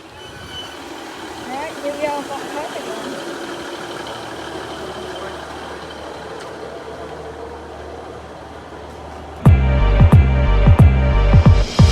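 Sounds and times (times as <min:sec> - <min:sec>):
vehicle engine humming: 0:00.0 - 0:11.9.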